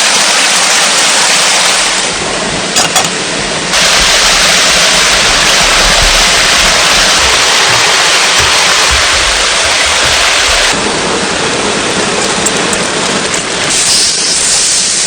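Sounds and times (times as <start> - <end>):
loud rushing noise: 3.7 - 11.4.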